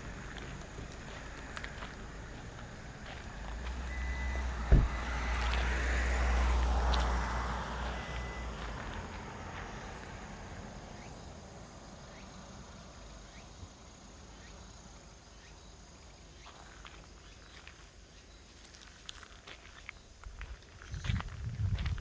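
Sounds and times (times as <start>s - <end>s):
footsteps: 0.0s - 4.0s, 4.6s - 5.7s.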